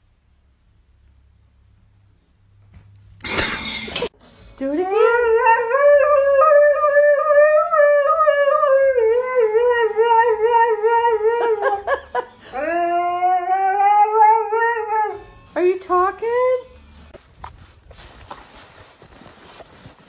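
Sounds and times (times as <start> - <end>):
dog howling: 4.8 - 11.8, 12.5 - 15.3.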